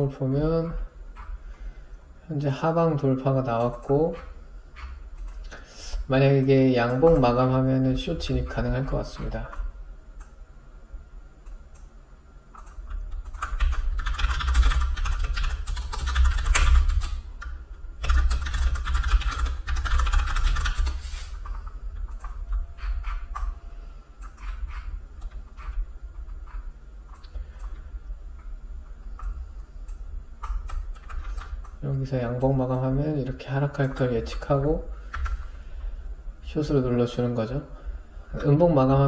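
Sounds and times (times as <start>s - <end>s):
computer keyboard typing: 12.5s - 23.6s, 24.2s - 27.8s, 29.2s - 31.8s.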